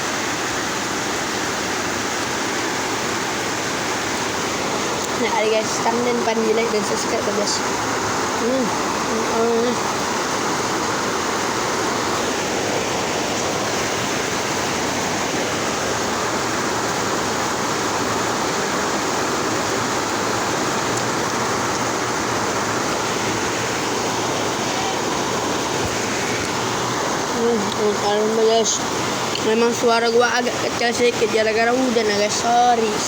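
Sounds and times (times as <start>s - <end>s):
heavy rain falling: 0.0s - 33.0s.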